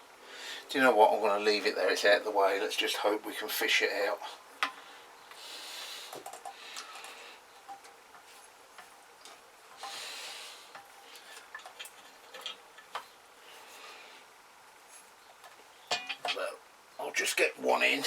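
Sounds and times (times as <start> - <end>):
scraping rustle: 5.6 - 16.5.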